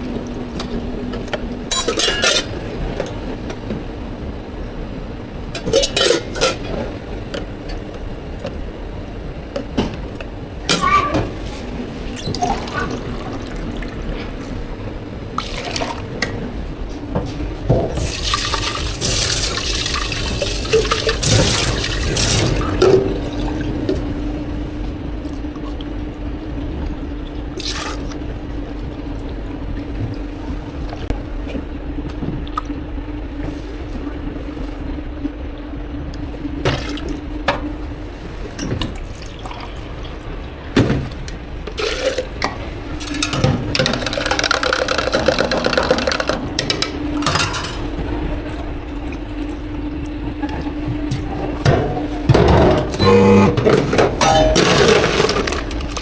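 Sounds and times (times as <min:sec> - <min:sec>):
steady low tone: 0:47.8 - 0:54.8.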